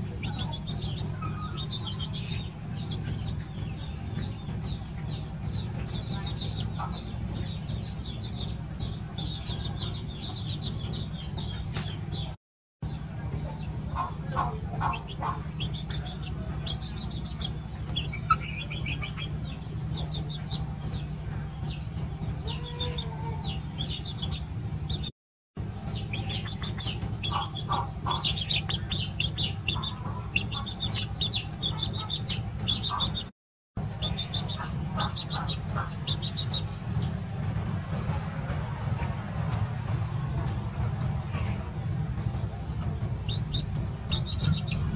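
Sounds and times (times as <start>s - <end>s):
chickens clucking: 0.0s - 44.9s
steady low hum: 0.0s - 44.9s.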